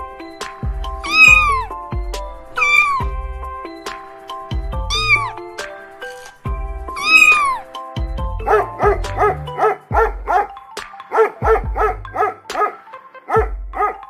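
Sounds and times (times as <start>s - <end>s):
background music with low bass: 0.0s - 14.0s
cat meowing: 1.1s - 1.7s, 4.9s - 5.3s, 7.0s - 7.6s
dog barking: 8.4s - 14.0s.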